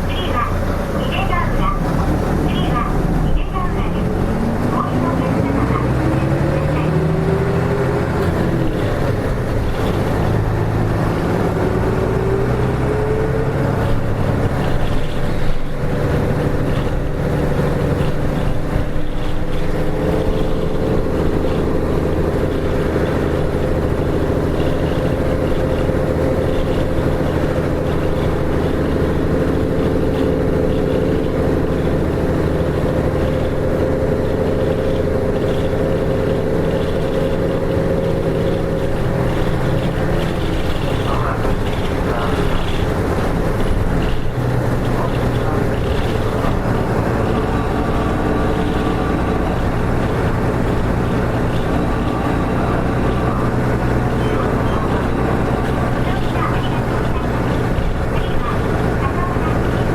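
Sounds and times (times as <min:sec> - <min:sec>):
bus diesel engine driving: 0:00.0 - 0:59.9.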